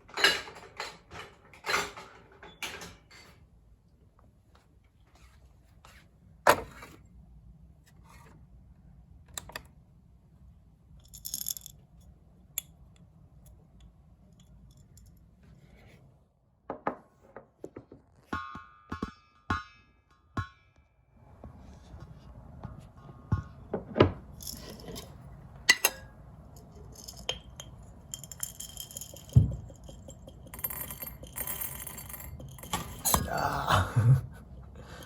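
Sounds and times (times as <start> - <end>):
low steady hum: 21.2 - 35.0
clinks with ringing tones: 25.7 - 33.3.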